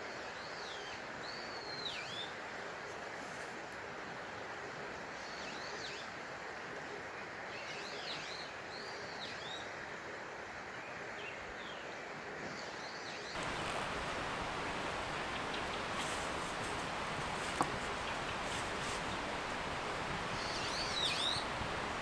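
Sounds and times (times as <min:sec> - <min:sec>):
steady outdoor hiss: 0:00.0 - 0:22.0
small bird chirping: 0:13.4 - 0:22.0.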